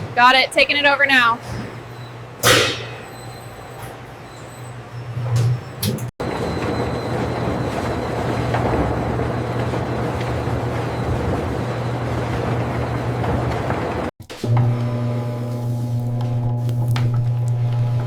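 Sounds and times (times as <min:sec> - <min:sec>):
factory machinery humming: 0:00.0 - 0:18.0.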